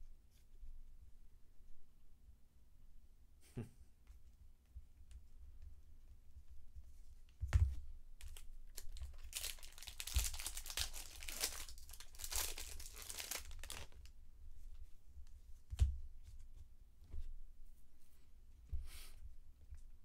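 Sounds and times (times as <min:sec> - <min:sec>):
wrapper tearing and crinkling: 0:08.3 - 0:14.0.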